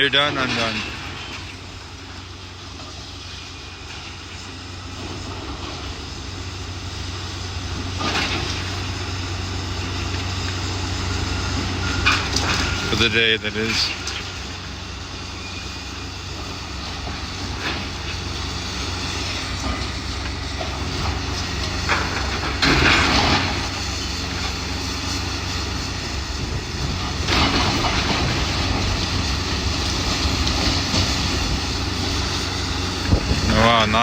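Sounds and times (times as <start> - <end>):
demolition machinery engine hum: 0.0 - 34.0
building debris crashing down: 20.6 - 23.8, 26.9 - 31.6.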